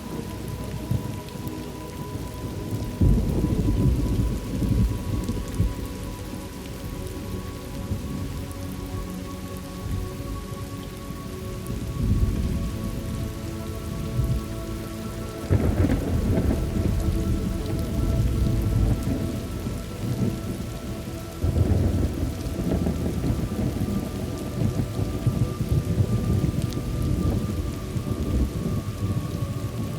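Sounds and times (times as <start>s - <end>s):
steady rain: 0.0s - 29.9s
rolling thunder: 2.2s - 6.0s, 15.4s - 29.9s.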